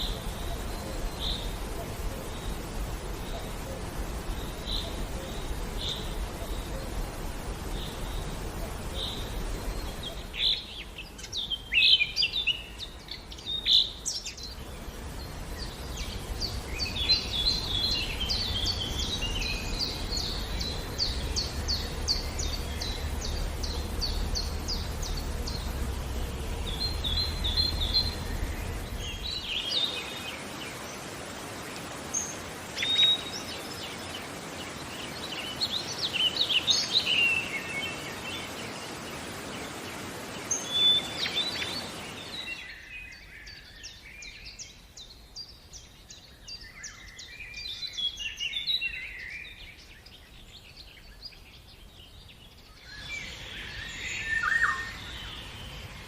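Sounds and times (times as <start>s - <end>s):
birds chirping and calling: 0.0s - 31.2s, 52.5s - 56.0s
low background rumble: 14.4s - 29.6s.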